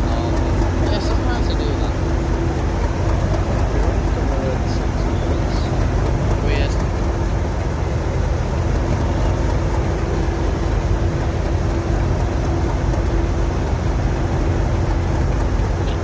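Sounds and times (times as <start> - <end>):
steady hum: 0.0 - 16.0
train rumbling: 0.0 - 16.0.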